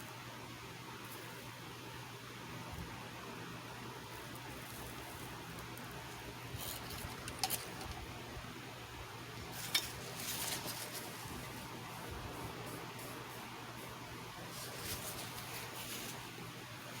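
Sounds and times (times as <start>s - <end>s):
steady hiss: 0.0s - 17.0s
small objects clicking and rustling: 4.3s - 8.1s, 9.5s - 11.3s.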